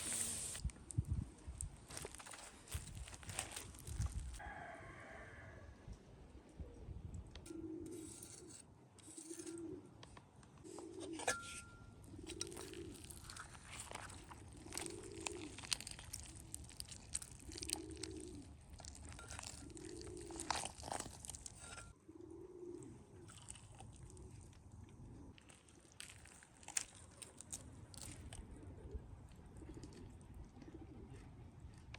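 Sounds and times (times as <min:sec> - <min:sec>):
sharp crunches and clicks: 0:01.6 - 0:04.4, 0:12.0 - 0:22.0, 0:23.3 - 0:28.6
dove cooing: 0:07.5 - 0:08.5, 0:09.3 - 0:09.9, 0:10.6 - 0:11.2, 0:12.1 - 0:13.3, 0:14.6 - 0:15.7, 0:17.4 - 0:18.6, 0:19.4 - 0:20.5, 0:21.6 - 0:23.5, 0:28.4 - 0:31.4.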